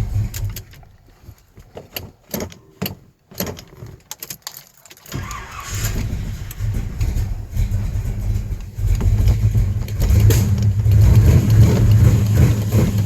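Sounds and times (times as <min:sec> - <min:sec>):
car engine running unevenly: 0:05.2 - 0:13.0
scattered clicks and knocks: 0:06.0 - 0:13.0.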